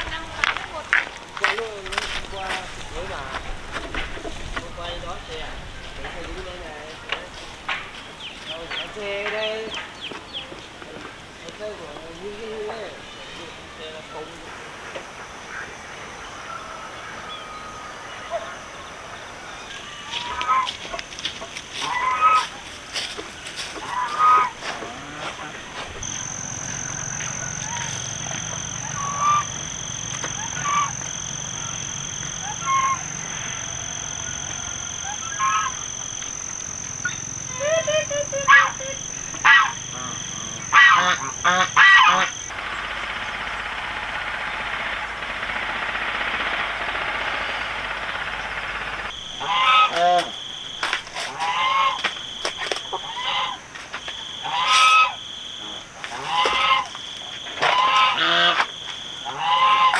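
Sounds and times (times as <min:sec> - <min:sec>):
farm animals honking cries: 0:11.7 - 0:59.9
high-pitched whine: 0:24.2 - 0:53.2.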